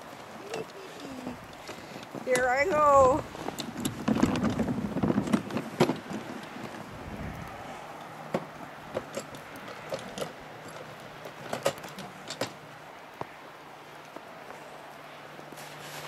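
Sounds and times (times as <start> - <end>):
footsteps crunching in snow: 15.5 - 16.0.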